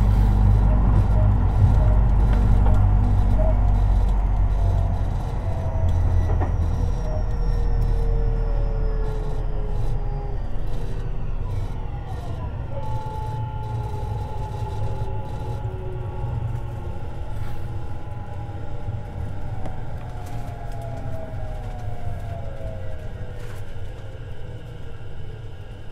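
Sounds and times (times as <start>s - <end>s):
traction motor whine: 0.0s - 25.9s
train wheels rumbling on rail: 0.0s - 25.9s.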